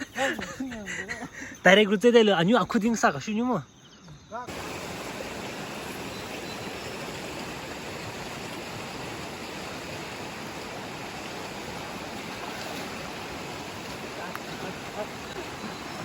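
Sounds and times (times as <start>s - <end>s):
river water rushing: 4.5s - 16.0s.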